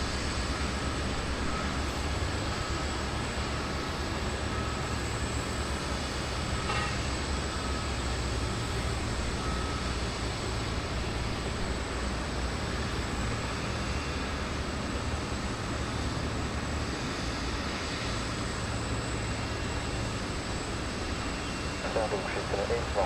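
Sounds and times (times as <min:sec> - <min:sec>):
jet engine rumble and whine: 0:00.0 - 0:23.0.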